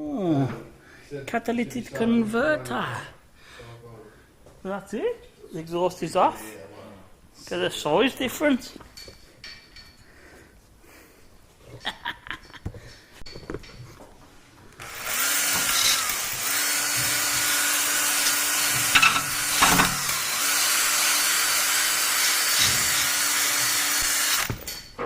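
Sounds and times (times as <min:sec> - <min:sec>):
electric power tool running: 0:14.8 - 0:24.7.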